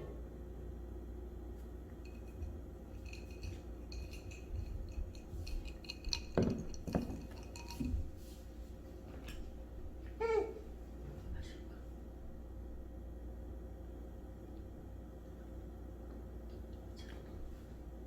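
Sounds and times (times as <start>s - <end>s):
glassware and dishes clinking: 2.0s - 8.4s.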